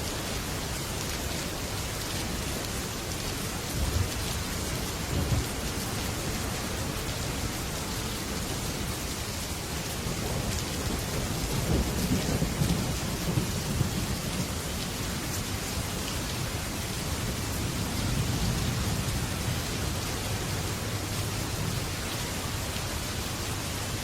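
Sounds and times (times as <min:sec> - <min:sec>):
heavy rain on a metal roof: 0:00.0 - 0:24.0
low thunder rumble: 0:09.7 - 0:23.9.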